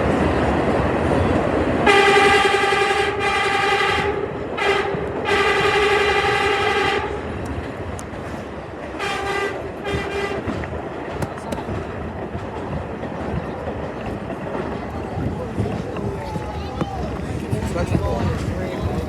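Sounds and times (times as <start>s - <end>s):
train rumbling: 0.0s - 19.0s
train horn blasts: 1.8s - 7.4s, 9.0s - 10.7s
train wheels clattering: 7.3s - 19.0s.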